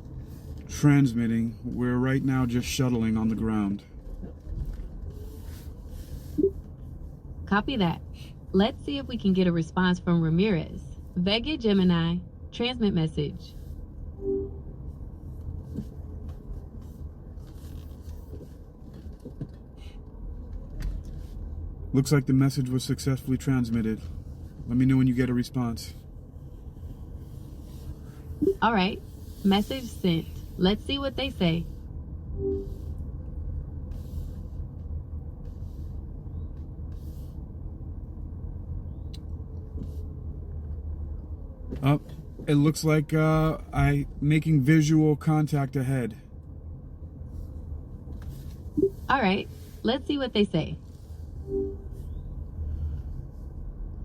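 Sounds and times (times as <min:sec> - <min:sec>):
faint rubbing and scraping: 0:00.0 - 0:00.8, 0:01.8 - 0:08.3, 0:13.3 - 0:21.6, 0:23.5 - 0:33.0, 0:33.9 - 0:34.8, 0:47.2 - 0:53.7
car cabin road noise: 0:00.0 - 0:54.0.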